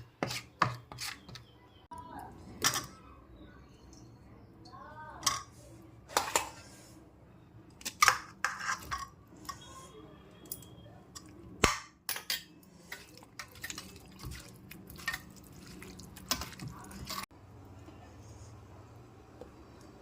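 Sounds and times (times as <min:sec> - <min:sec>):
dishes and utensils clinking: 0:07.8 - 0:17.3.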